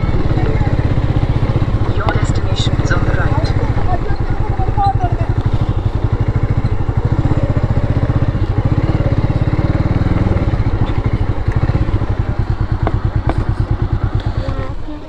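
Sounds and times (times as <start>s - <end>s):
vehicle engine pulsing: 0.0s - 15.0s.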